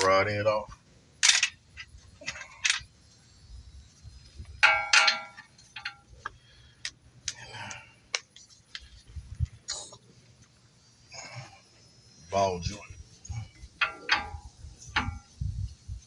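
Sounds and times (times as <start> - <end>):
metal tools clinking: 1.2 - 3.2, 4.6 - 6.2, 12.6 - 15.4
ringing metal clang: 4.6 - 6.1, 13.8 - 15.4.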